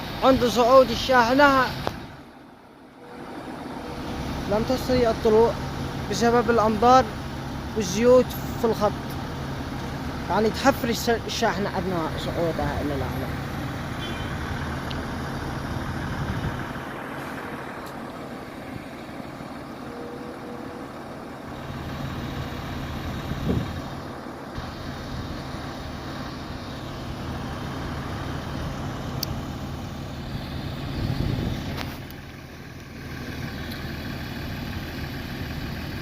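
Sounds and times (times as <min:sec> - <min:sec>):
truck diesel engine running: 0:00.0 - 0:36.0.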